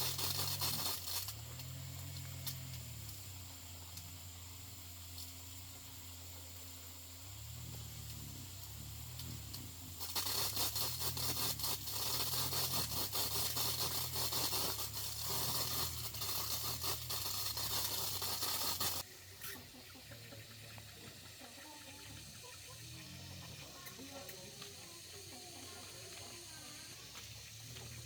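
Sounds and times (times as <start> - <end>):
harsh scraping on metal: 9.1 - 19.6.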